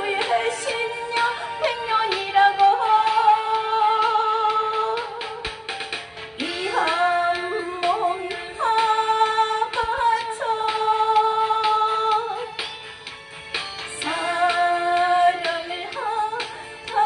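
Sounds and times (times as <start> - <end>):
woman singing: 0.0 - 5.7, 6.4 - 12.6, 13.9 - 17.0
backing track music: 0.0 - 17.0.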